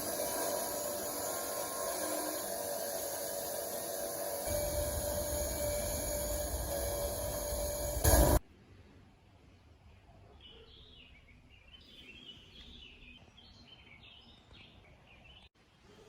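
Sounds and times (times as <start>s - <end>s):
loud machine noise: 0.0s - 8.4s.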